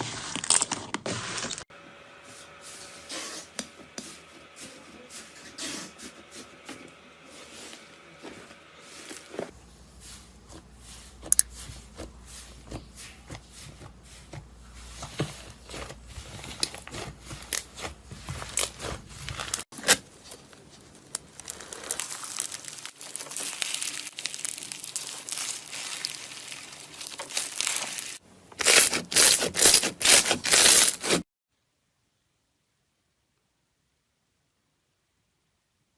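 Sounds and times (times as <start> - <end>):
slime squishing: 10.4 - 19.6, 20.9 - 31.2.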